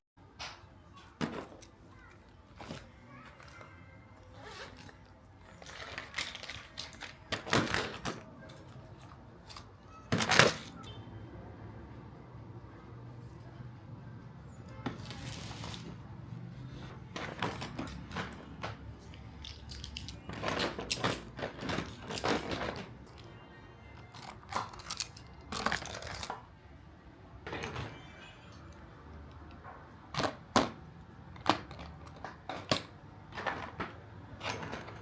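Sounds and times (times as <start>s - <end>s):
faint background music: 0.2s - 35.0s
household objects clattering: 16.8s - 23.4s, 31.4s - 35.0s.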